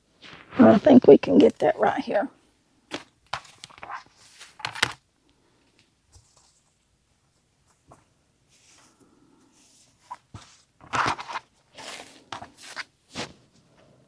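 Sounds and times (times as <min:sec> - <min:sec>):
scraping rustle: 0:00.1 - 0:01.6, 0:07.6 - 0:13.8.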